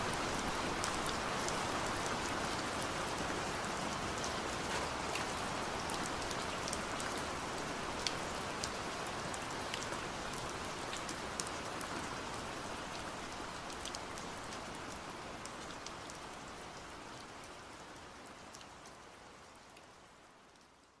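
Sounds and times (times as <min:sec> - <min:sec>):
raindrops ticking on a surface: 0:00.0 - 0:21.0
steady rain hiss: 0:00.0 - 0:21.0.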